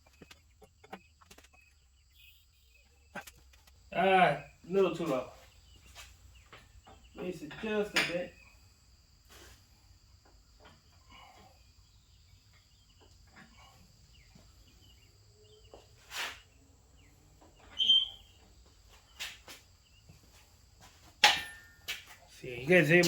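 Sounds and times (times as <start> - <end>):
short squeak: 17.7 - 18.3
metal tools knocking and clicking: 21.2 - 21.9.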